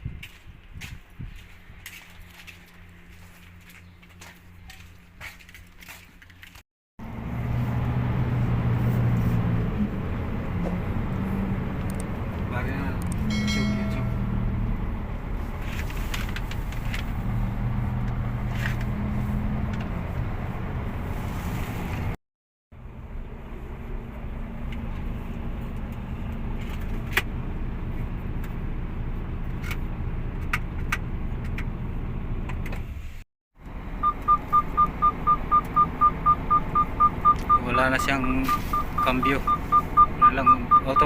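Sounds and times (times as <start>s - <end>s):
rapid electronic beeping: 34.0s - 41.0s.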